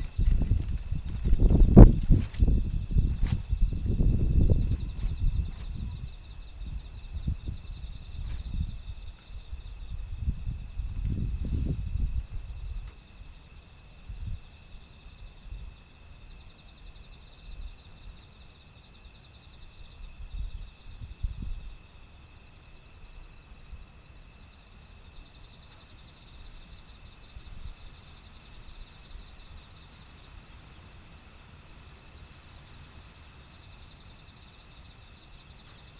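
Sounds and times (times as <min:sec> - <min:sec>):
wind on microphone: 0:00.0 - 0:13.0, 0:20.0 - 0:22.0
insects trilling: 0:00.0 - 0:35.9.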